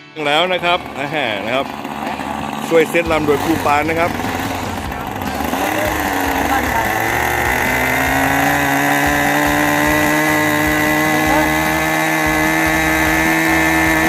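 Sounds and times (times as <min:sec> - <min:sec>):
model airplane engine buzzing: 0:00.0 - 0:14.0.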